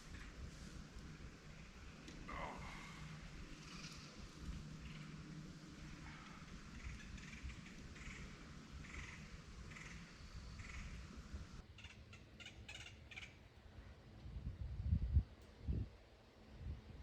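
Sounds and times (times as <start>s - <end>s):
wind rumble on microphone: 0.0s - 11.6s, 14.1s - 17.0s
birds calling: 2.2s - 13.3s.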